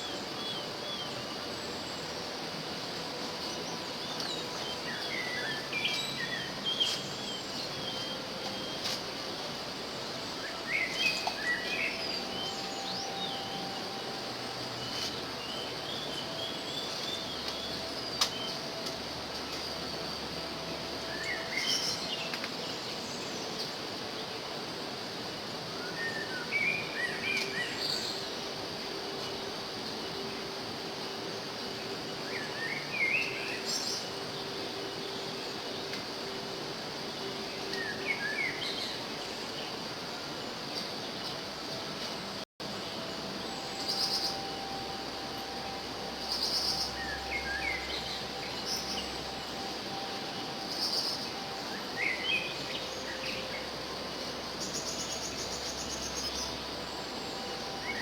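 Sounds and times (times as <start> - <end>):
small birds chirping: 0.0 - 24.6, 42.6 - 58.0
steady background hiss: 0.0 - 58.0
bird chirps: 42.9 - 58.0.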